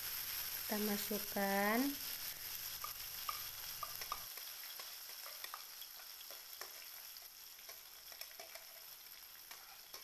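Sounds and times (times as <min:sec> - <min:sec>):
paste sizzling in hot oil: 0:00.0 - 0:10.0
small pops and clicks: 0:02.8 - 0:05.7.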